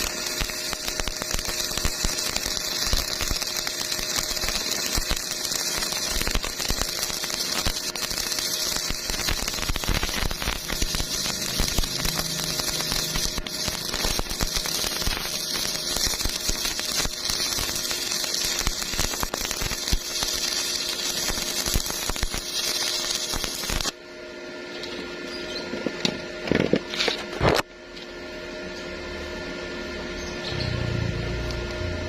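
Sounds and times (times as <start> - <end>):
welding arc crackling: 0.0 - 24.0.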